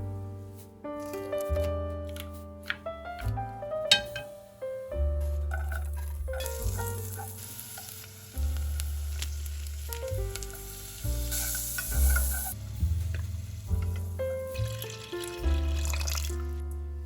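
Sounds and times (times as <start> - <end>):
soft piano and bass music: 0.0 - 17.0
sizzling hiss: 3.9 - 16.4.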